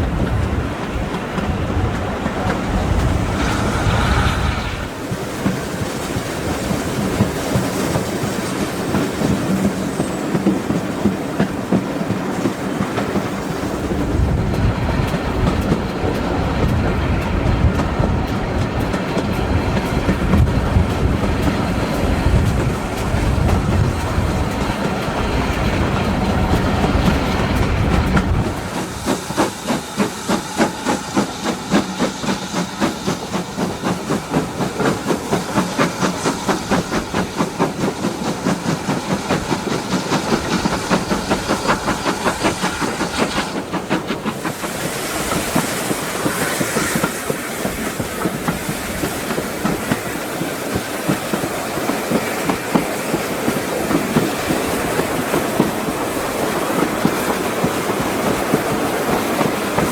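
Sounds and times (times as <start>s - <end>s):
steam hiss: 0.0s - 59.9s
steam locomotive exhaust chuffing: 0.0s - 59.9s
heavy rumble: 13.9s - 29.4s.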